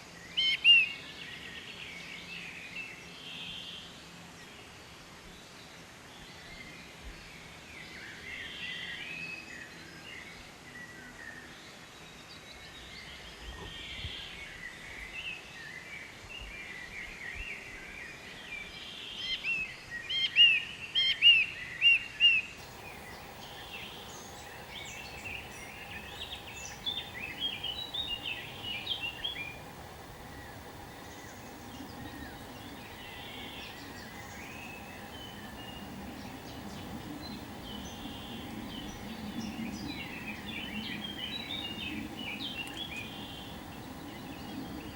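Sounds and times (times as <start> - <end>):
small birds chirping: 22.4 - 44.9.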